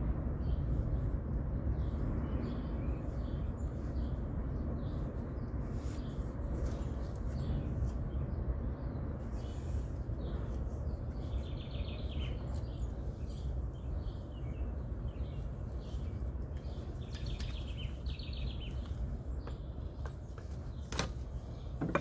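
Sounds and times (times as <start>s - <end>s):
birds chirping: 0.4s - 22.0s
bird trill: 16.7s - 19.6s.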